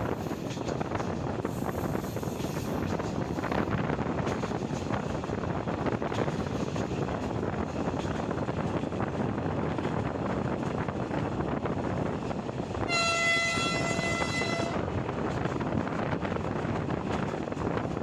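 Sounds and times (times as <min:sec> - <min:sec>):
train rumbling on rails: 0:00.0 - 0:18.0
train horn: 0:12.8 - 0:15.0.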